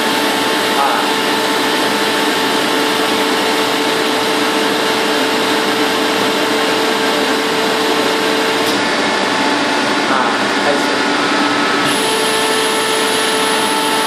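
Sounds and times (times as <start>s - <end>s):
air compressor running: 0.0s - 14.0s.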